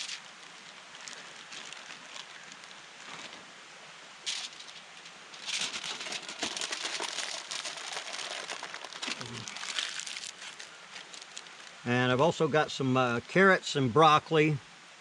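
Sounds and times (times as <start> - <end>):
wrapping material crinkling: 0.0 - 3.5, 4.3 - 11.8.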